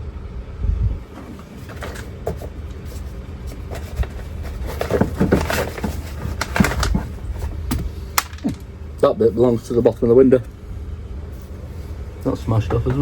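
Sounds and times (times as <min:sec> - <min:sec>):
low steady hum: 0:00.0 - 0:13.0
parts clicking and knocking: 0:01.1 - 0:09.1.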